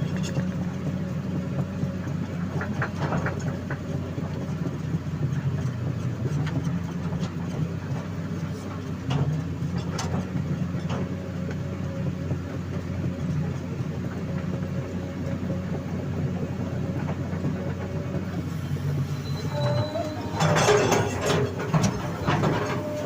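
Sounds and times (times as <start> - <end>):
excavator diesel engine running: 0.0 - 23.0
metal clanking: 19.4 - 23.0.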